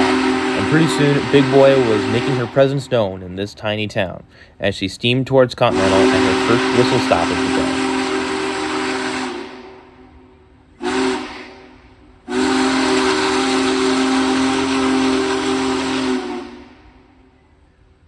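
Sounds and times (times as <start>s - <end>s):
steam whistle blasts: 0.0s - 3.4s, 5.6s - 17.7s
steam hiss: 10.8s - 16.7s.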